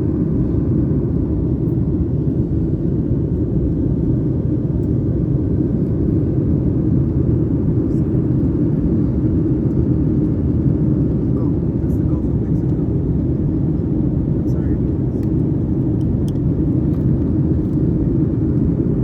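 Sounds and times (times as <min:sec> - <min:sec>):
airliner cabin engine rumble: 0:00.0 - 0:19.0.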